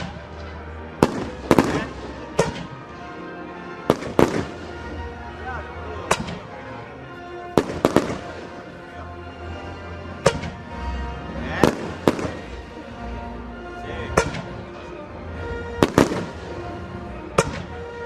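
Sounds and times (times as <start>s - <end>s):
fireworks bursting: 0.0s - 2.9s, 3.9s - 5.0s, 7.6s - 8.7s, 11.6s - 12.6s, 15.8s - 17.8s
background music: 0.0s - 18.0s.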